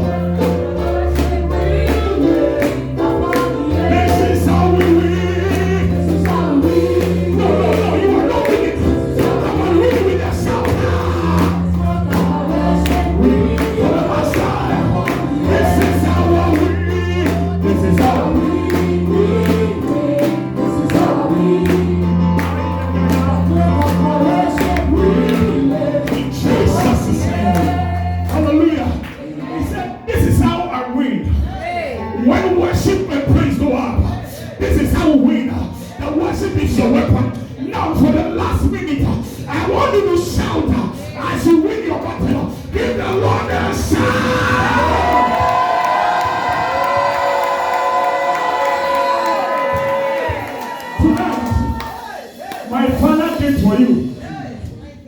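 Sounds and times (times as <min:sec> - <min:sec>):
steady drum beat: 0:00.0 - 0:28.5, 0:42.2 - 0:48.6
held bass notes: 0:00.0 - 0:30.5, 0:42.0 - 0:48.0
choir singing gospel music: 0:00.0 - 0:55.0.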